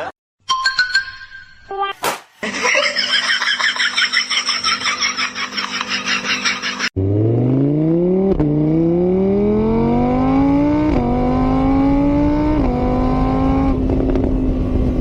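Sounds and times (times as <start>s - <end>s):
car engine accelerating: 7.0s - 15.0s.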